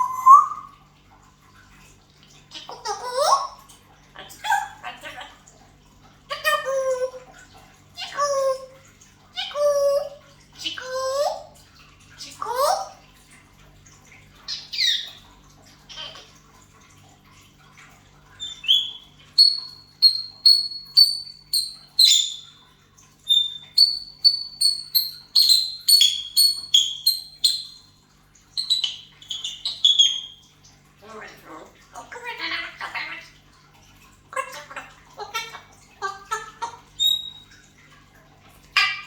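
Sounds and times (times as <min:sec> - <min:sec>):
parrot whistling chirps: 0:00.0 - 0:00.7, 0:18.4 - 0:22.6, 0:23.3 - 0:27.9, 0:28.6 - 0:30.4, 0:37.0 - 0:37.5.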